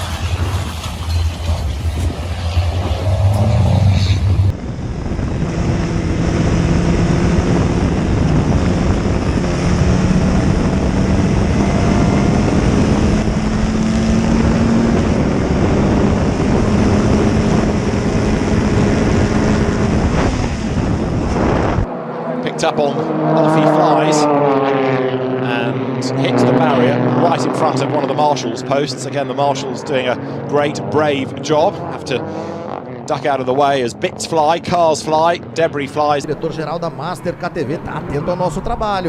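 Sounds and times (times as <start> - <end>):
loud rushing noise: 0.0 - 24.4
low hum: 0.0 - 25.9
racing engine at high revs: 0.0 - 39.0.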